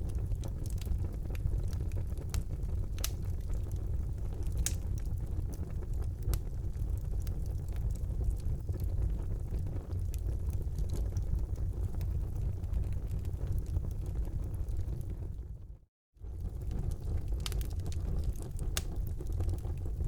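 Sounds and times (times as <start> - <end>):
fire crackling and popping: 0.0 - 15.6, 16.2 - 20.0
fire rumbling: 0.0 - 20.0.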